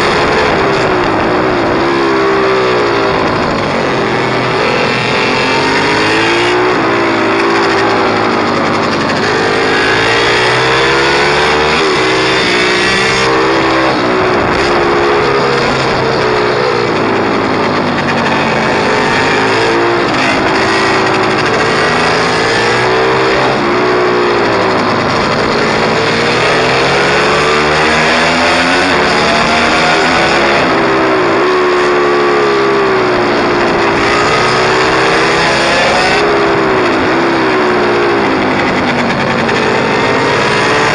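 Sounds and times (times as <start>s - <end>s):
pit bike engine revving: 0.0s - 40.9s.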